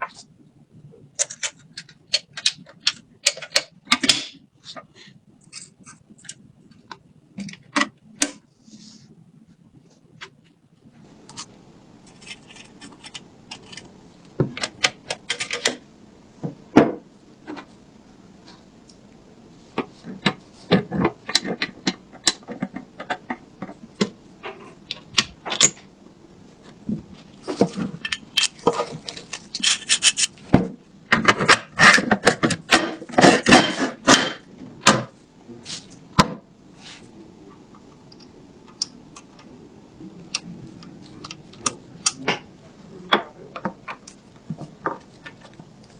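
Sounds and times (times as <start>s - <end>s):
rubbing and scraping: 11.0s - 14.5s, 26.6s - 30.6s.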